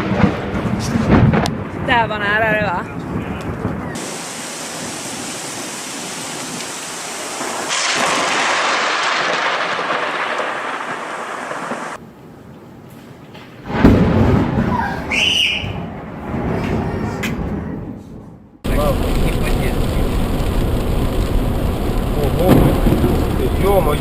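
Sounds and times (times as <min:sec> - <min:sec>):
loud thunder clap: 0:00.0 - 0:12.0, 0:13.7 - 0:17.9, 0:18.6 - 0:24.0
heavy rain hissing: 0:04.0 - 0:12.0, 0:18.7 - 0:24.0.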